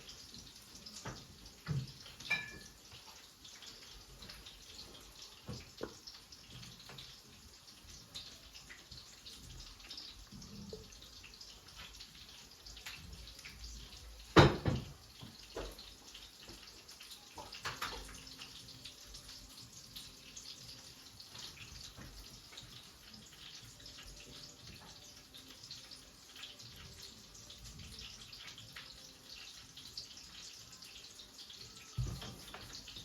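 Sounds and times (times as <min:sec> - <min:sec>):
water running and dripping: 0:00.0 - 0:33.0.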